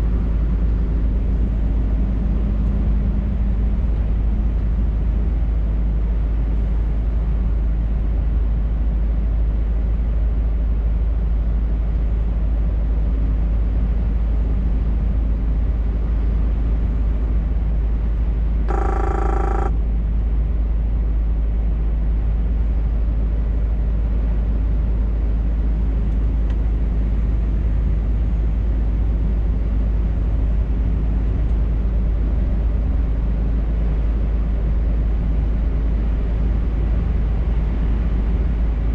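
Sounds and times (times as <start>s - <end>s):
short pitched tone: 18.7s - 19.8s.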